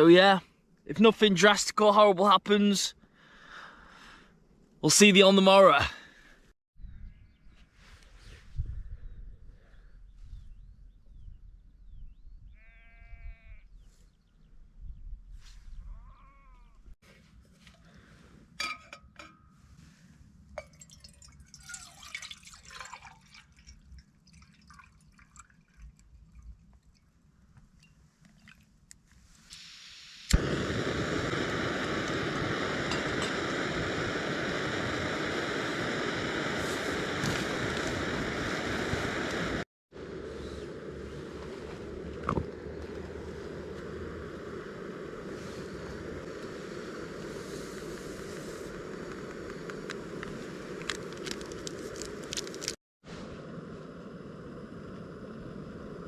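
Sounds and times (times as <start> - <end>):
sheep bleating: 12.6 - 13.7, 15.9 - 16.7.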